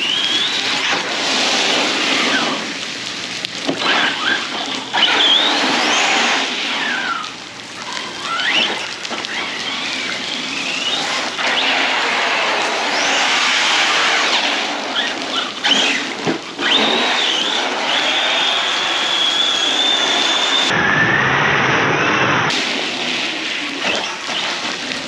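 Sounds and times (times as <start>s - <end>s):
rain and spray hissing: 0.0s - 20.7s, 22.3s - 25.0s
toy truck motor whining: 14.9s - 20.7s.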